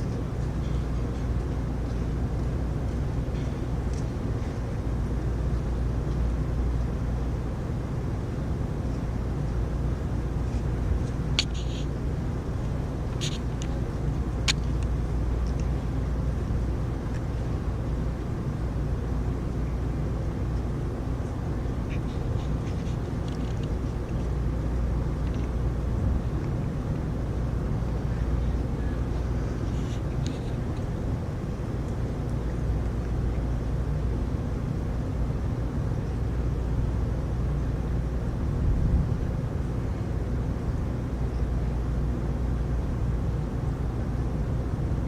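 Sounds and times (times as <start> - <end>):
faint high drip ticks: 0.0 - 4.6, 12.6 - 16.2, 25.1 - 25.6.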